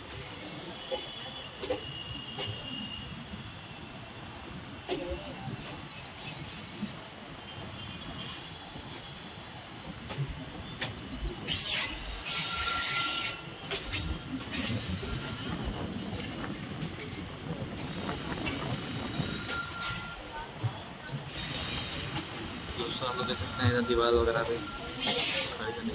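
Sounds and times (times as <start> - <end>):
train rumbling on rails: 0.0 - 25.9
train wheels squealing: 0.0 - 25.9
hiss: 11.5 - 15.5, 25.0 - 25.7.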